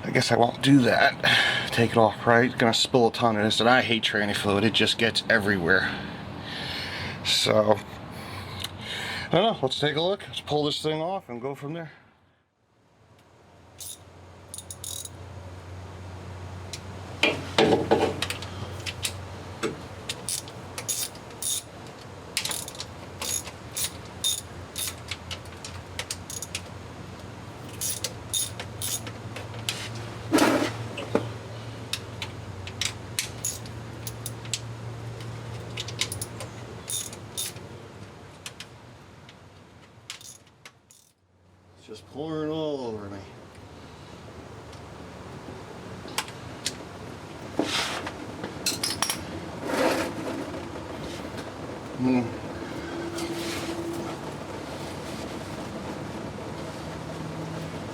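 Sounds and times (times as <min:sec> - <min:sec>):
socket ratchet clicking: 0:13.8 - 0:15.1, 0:20.2 - 0:21.7, 0:22.4 - 0:25.1, 0:26.1 - 0:26.6, 0:27.7 - 0:29.1, 0:33.2 - 0:34.4, 0:36.0 - 0:37.6.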